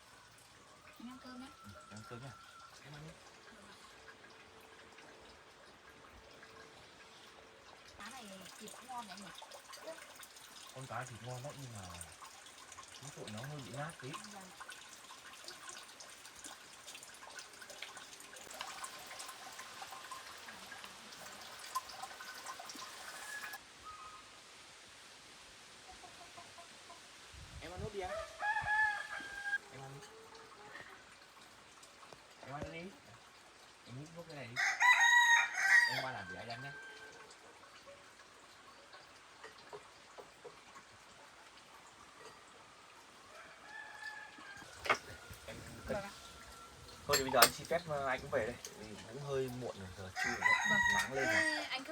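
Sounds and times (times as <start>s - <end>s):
chickens clucking: 25.8s - 27.1s.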